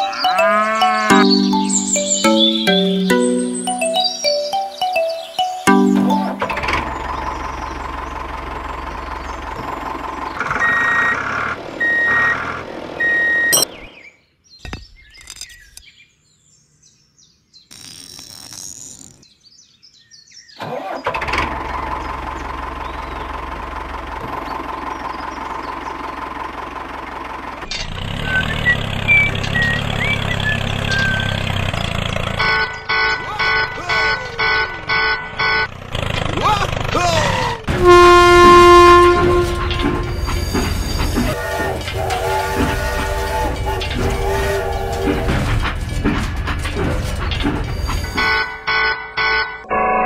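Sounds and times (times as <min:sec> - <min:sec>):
tractor engine running: 0:06.5 - 0:11.8, 0:21.1 - 0:33.1, 0:34.4 - 0:36.9, 0:37.6 - 0:48.4.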